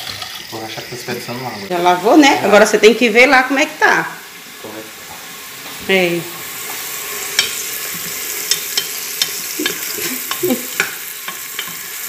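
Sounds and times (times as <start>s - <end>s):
onion sizzling in hot oil: 0.0s - 12.0s
spoon knocking against pot: 8.4s - 11.8s.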